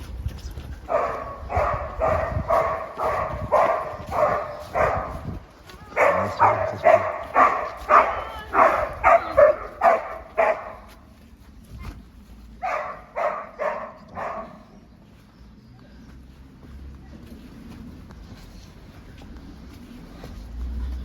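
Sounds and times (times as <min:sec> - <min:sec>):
dog barking: 0:00.9 - 0:11.0, 0:12.6 - 0:14.8.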